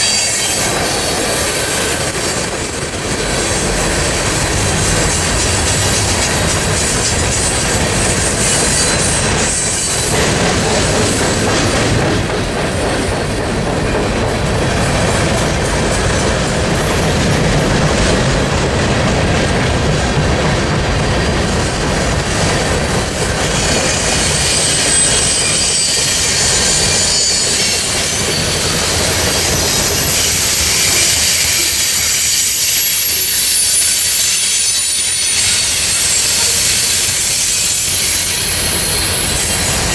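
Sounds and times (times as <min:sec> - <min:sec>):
high-pitched wheel squeals: 0:00.0 - 0:03.0, 0:05.0 - 0:10.4, 0:23.0 - 0:39.9
train wheels rumbling: 0:00.0 - 0:39.9.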